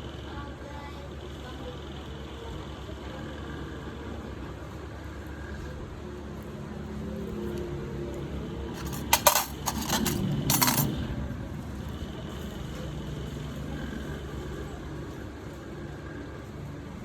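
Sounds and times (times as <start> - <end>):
small hard objects clinking: 8.8 - 10.9.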